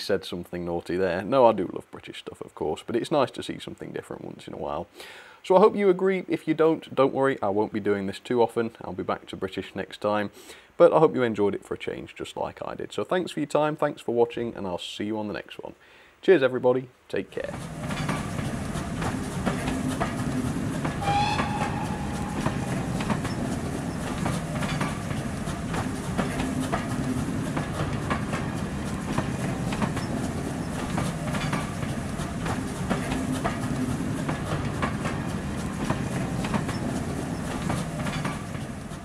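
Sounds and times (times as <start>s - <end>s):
train coaches rumbling past: 17.4s - 39.0s
wheels clicking over rail joints: 17.4s - 39.0s
short whistle-like tone: 21.0s - 23.5s.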